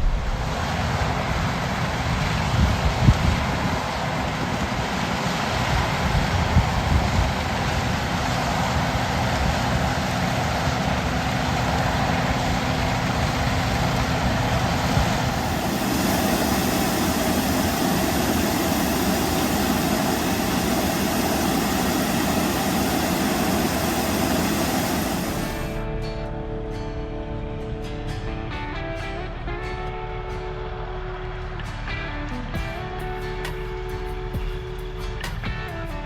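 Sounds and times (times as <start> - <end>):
engine idling: 3.9 - 25.8.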